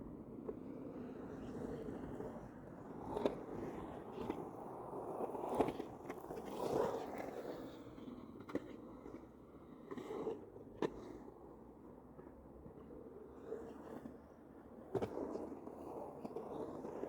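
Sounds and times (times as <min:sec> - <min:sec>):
skateboard rolling: 0:01.6 - 0:11.0, 0:13.4 - 0:17.0
skateboard clacks and scrapes: 0:13.4 - 0:17.0.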